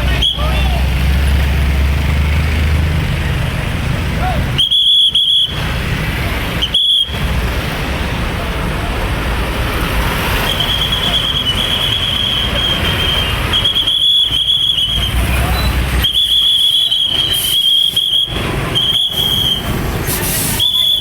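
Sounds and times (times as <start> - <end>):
trucks rumbling past: 0.0 - 21.0
high steady whistle tone: 4.6 - 5.6, 6.5 - 7.2, 10.4 - 21.0.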